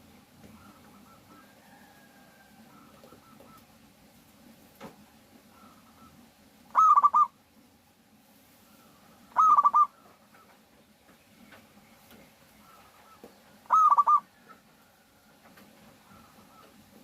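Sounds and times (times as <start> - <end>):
dove cooing: 0.0 - 3.9, 5.4 - 7.4, 8.7 - 10.6, 12.5 - 17.0
faint background coos: 0.1 - 4.0, 5.3 - 7.6, 8.5 - 10.9, 11.5 - 17.0.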